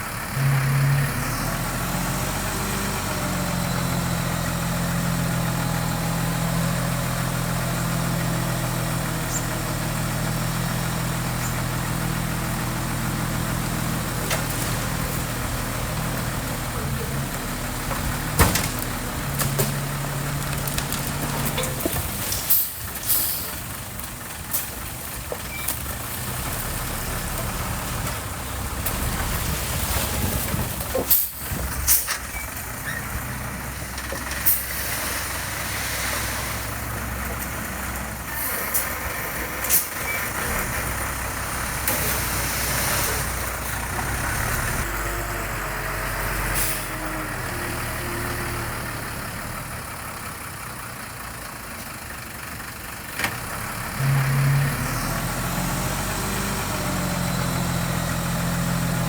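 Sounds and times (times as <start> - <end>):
diesel machinery running: 0.0 - 59.0
sharp hissing or clanking bursts: 21.5 - 23.7.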